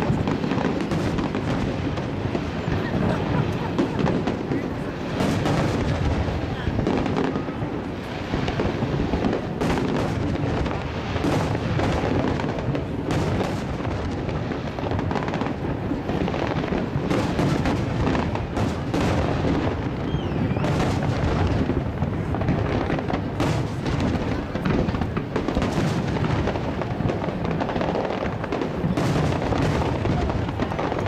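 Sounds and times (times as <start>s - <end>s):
firework shells booming: 0.0s - 31.0s
fireworks crackling: 0.0s - 31.0s
falling firework whistle: 19.8s - 21.8s.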